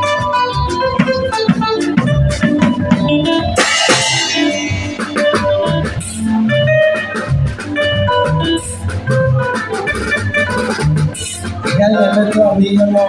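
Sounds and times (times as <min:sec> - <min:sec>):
band playing: 0:00.0 - 0:13.0
cymbal crash: 0:03.6 - 0:06.3.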